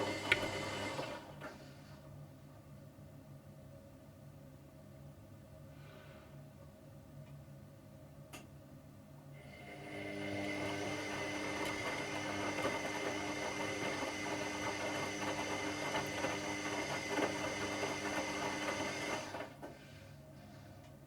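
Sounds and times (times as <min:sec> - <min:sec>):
washing machine motor whining: 0:00.0 - 0:01.6, 0:09.4 - 0:19.7.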